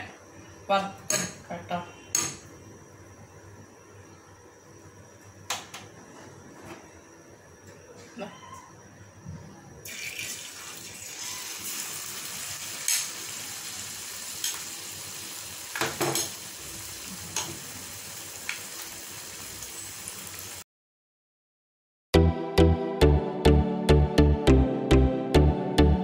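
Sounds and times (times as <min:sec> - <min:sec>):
plantain deep-frying in oil: 0:09.8 - 0:20.6.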